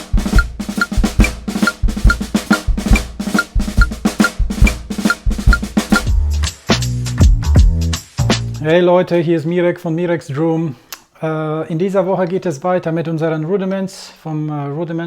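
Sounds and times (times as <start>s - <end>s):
drum kit playing: 0.0s - 8.6s.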